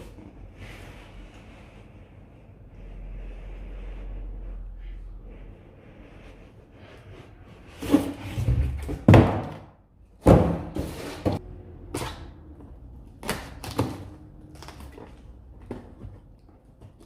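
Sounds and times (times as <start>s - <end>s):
sharp knocks and thuds: 8.8s - 11.4s.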